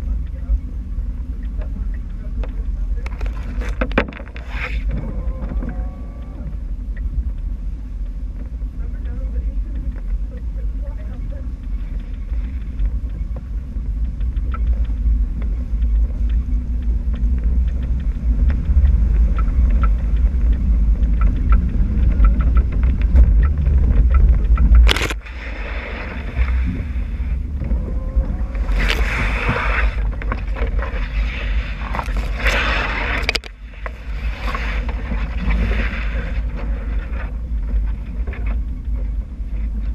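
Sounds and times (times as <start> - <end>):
engine and wind rumble: 0.0 - 39.9
rattling clicks: 2.3 - 10.2, 11.6 - 25.2.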